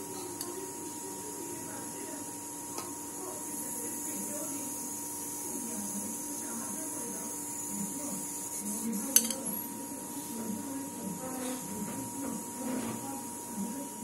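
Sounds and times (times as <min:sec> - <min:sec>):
steady electrical hum: 0:00.0 - 0:14.0
spoon clinking on steel plate: 0:09.1 - 0:09.5.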